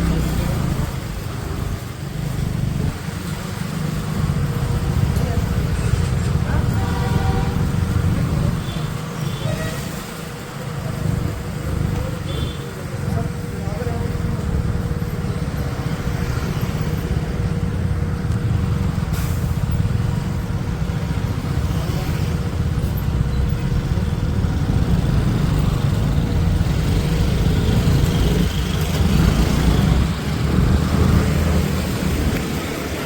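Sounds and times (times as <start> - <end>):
road noise: 0.0 - 33.0
motorcycle engine: 13.3 - 33.0.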